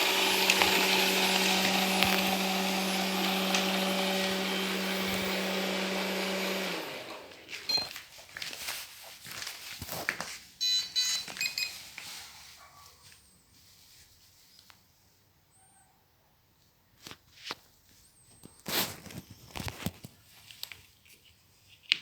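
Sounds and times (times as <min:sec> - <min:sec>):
robot vacuum motor hum: 0:00.0 - 0:07.7.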